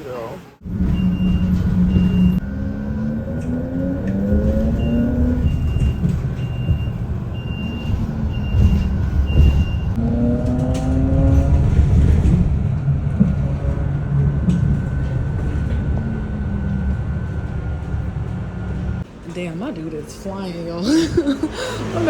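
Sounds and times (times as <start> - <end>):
bus engine rumbling: 0.0 - 22.0.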